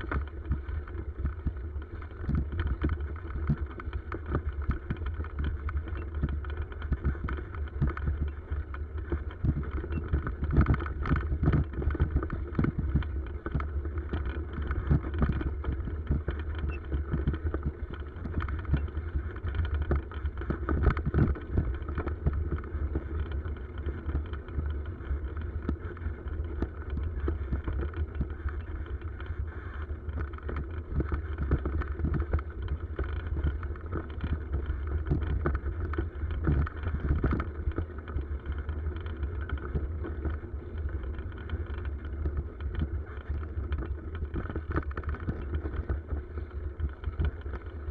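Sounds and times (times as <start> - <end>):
bicycle riding rumble: 0.0 - 47.9.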